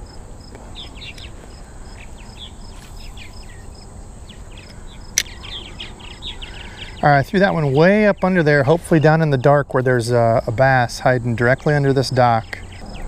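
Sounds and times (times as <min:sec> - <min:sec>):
birds chirping: 0:00.0 - 0:13.0
outdoor background noise: 0:00.0 - 0:13.0
sharp click: 0:04.6 - 0:05.4.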